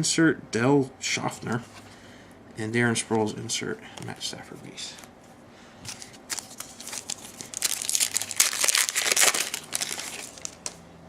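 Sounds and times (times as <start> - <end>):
foil wrapper tearing and crinkling: 5.9 - 10.8.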